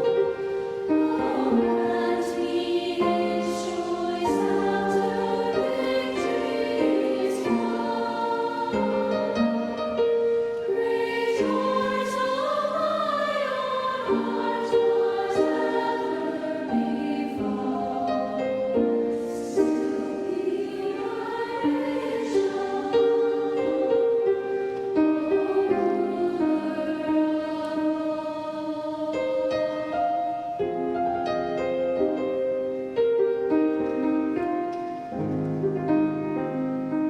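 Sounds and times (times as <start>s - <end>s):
youth choir singing a hymn: 0.0s - 33.3s.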